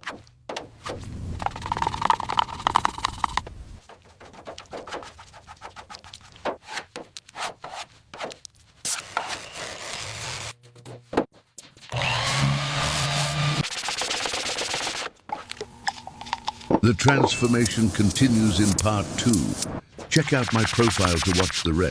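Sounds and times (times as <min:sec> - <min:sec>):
workshop scraping and rubbing: 0:03.8 - 0:11.3, 0:15.4 - 0:21.9.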